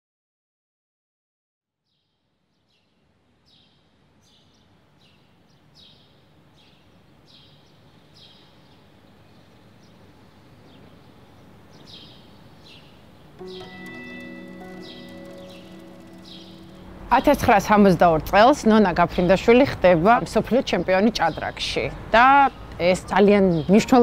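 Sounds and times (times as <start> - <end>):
outdoor background noise: 1.9 - 24.0
bird chirping: 3.5 - 18.0
sustained music notes: 13.4 - 18.8.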